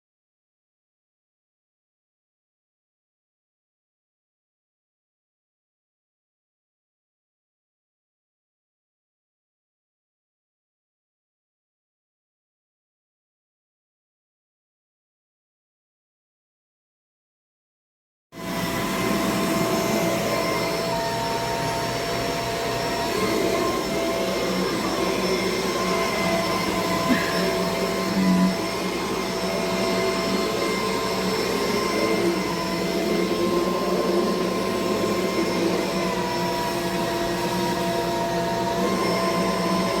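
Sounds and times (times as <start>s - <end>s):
upright vacuum whining: 18.4s - 40.0s.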